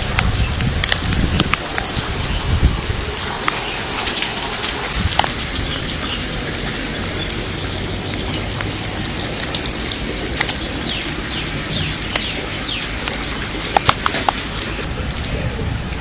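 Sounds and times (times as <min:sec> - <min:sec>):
heavy rain pouring: 0:00.0 - 0:16.0
bird chirping: 0:10.5 - 0:14.0.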